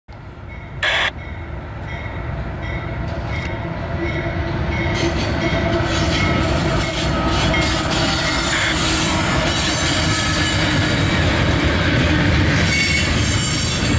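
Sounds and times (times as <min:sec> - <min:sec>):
train rolling by: 0:00.2 - 0:13.9
short burst of noise: 0:00.8 - 0:01.1.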